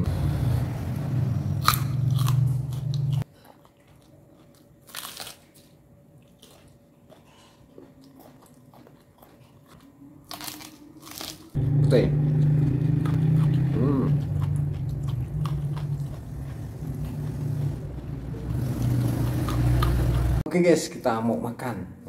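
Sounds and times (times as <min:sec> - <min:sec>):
low hum: 0:00.0 - 0:03.2, 0:09.8 - 0:20.4
crunching and chewing garlic: 0:01.6 - 0:17.3.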